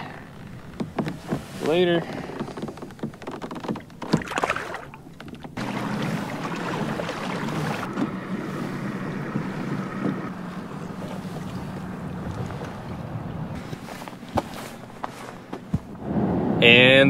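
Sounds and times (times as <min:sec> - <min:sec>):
water around boat: 0:00.0 - 0:16.8
wind on microphone: 0:05.6 - 0:14.4, 0:15.7 - 0:17.0.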